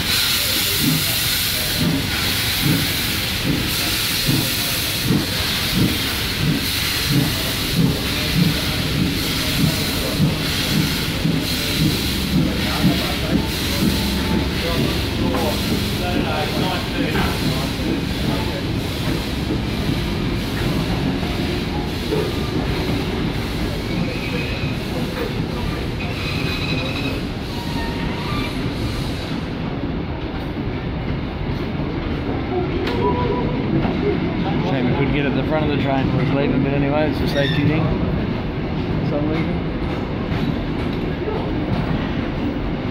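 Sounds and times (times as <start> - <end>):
steam hissing: 0.0 - 29.7
steam locomotive chuffing: 0.0 - 42.9
wheel squeals: 26.0 - 28.5.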